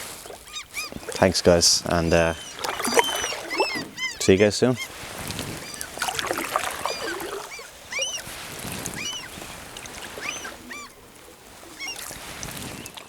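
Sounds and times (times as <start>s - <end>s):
canoe paddling on water: 0.0s - 13.0s
short high animal calls: 0.4s - 9.3s, 10.1s - 11.0s.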